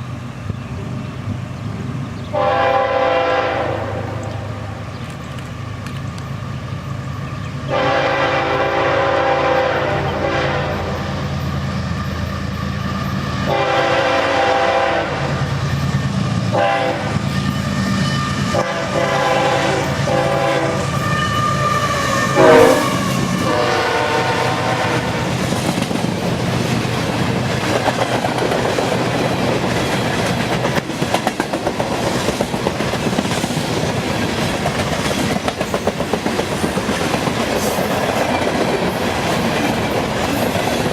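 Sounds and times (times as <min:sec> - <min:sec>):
locomotive air horn: 0:02.3 - 0:04.2, 0:07.7 - 0:11.2, 0:13.4 - 0:15.4, 0:16.5 - 0:25.3
train wheels clacking over rail joints: 0:25.0 - 0:40.9.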